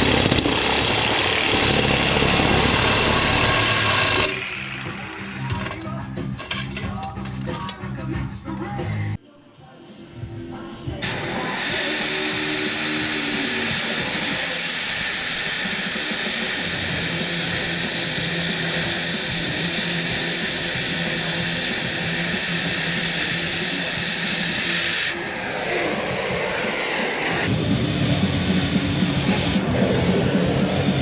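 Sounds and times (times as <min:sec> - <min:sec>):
rushing air hiss: 0:11.0 - 0:31.0
low hum: 0:25.1 - 0:31.0.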